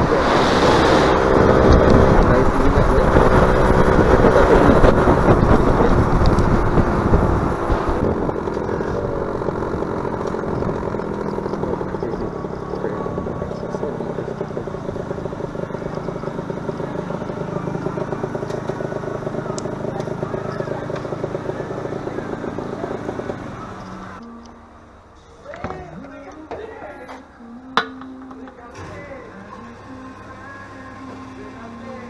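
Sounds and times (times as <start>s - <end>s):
wind rush: 0.0s - 9.9s
motorcycle engine running: 0.0s - 25.1s.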